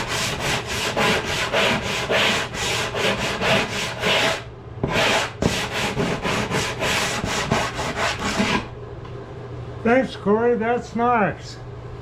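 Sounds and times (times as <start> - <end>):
wood being sanded by hand: 0.0 - 8.7.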